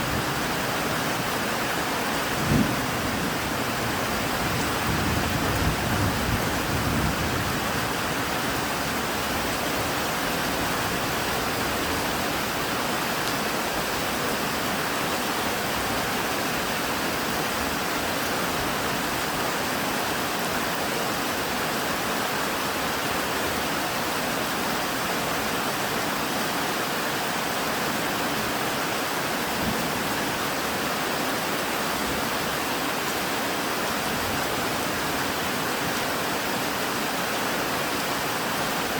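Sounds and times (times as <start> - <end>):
heavy rain hissing: 0.0 - 38.9
low thunder rumble: 2.3 - 7.9.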